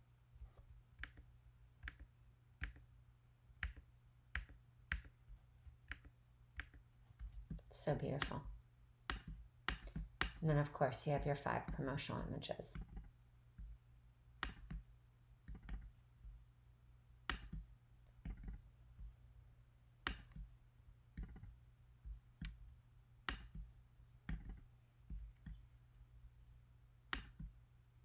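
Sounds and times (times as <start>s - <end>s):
low steady hum: 0.0s - 28.0s
computer mouse clicks: 5.8s - 6.8s, 9.1s - 10.4s, 14.4s - 14.8s, 15.4s - 16.0s, 17.3s - 18.6s, 21.1s - 21.6s, 23.3s - 23.7s, 27.1s - 27.5s.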